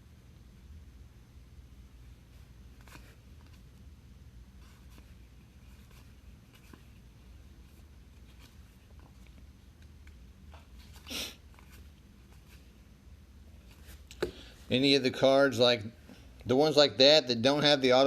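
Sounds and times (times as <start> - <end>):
low steady hum: 0.0 - 18.0
trading cards being flipped: 2.7 - 3.7.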